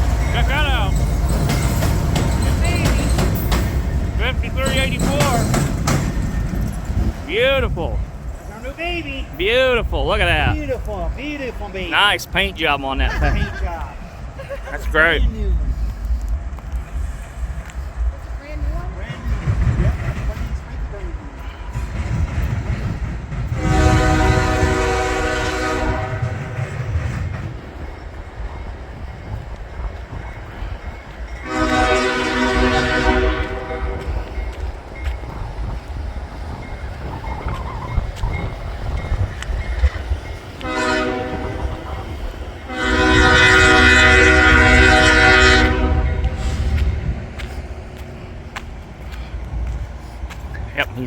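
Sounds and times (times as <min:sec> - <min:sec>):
low rumble of train: 0:00.0 - 0:51.0
locomotive air horn blast: 0:23.6 - 0:26.6, 0:31.4 - 0:34.3, 0:40.6 - 0:42.1, 0:42.7 - 0:46.8.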